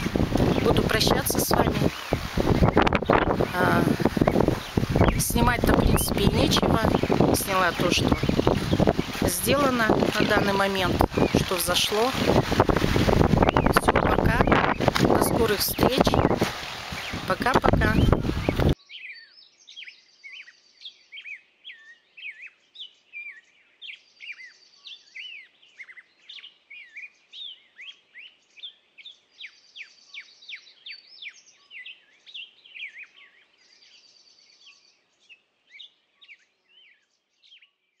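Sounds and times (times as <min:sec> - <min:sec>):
buzzy bird trill: 0:00.0 - 0:19.3
songbirds chirping and singing: 0:00.0 - 0:38.0.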